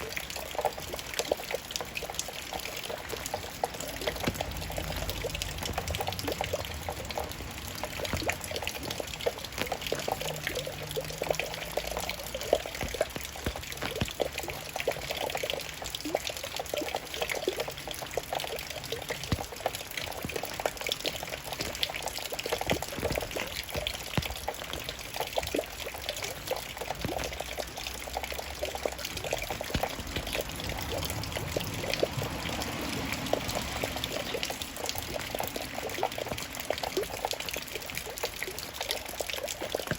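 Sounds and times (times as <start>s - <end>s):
raindrops falling: 0.0s - 39.9s.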